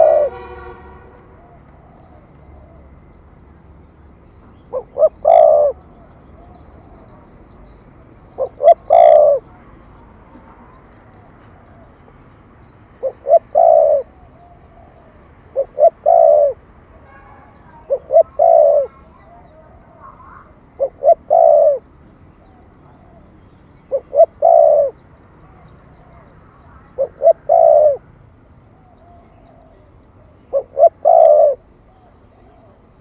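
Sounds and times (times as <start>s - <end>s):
dove cooing: 0.0s - 0.5s, 1.4s - 3.1s, 4.5s - 9.6s, 13.0s - 16.6s, 17.6s - 28.1s, 28.8s - 33.0s.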